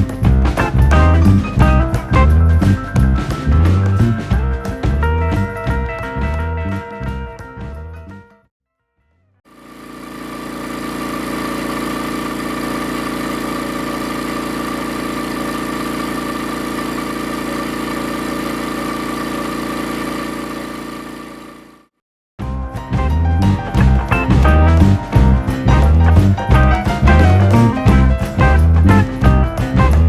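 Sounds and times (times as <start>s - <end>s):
air compressor running: 9.5s - 21.9s.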